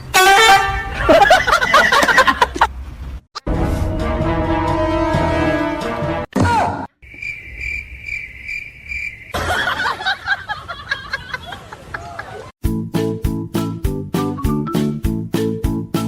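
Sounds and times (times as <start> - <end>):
music: 3.4 - 6.3, 12.6 - 16.0.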